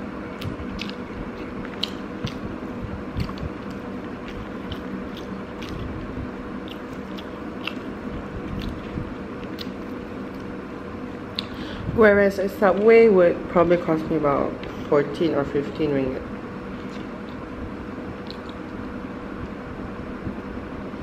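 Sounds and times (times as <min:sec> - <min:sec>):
faint steady hum: 0:00.0 - 0:21.0
chewing and mouth clicks: 0:00.3 - 0:10.5, 0:16.7 - 0:17.5, 0:18.2 - 0:18.8.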